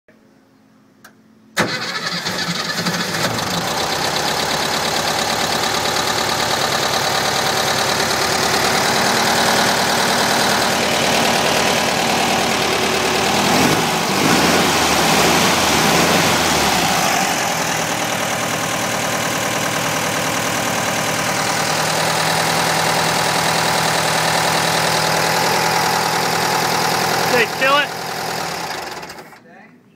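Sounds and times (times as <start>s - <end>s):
car engine starting and idling: 1.0s - 29.4s.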